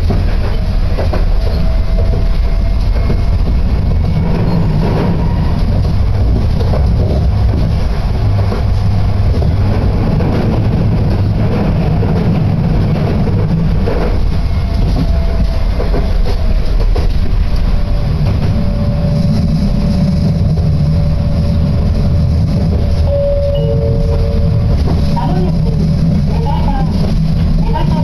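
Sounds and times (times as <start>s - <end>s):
train rumble from inside: 0.0s - 28.0s.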